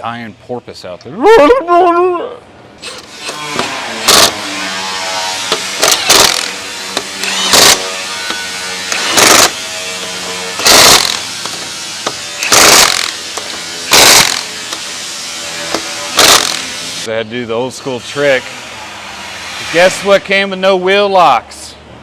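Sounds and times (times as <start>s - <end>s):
air impact wrench bursts: 2.7s - 17.1s.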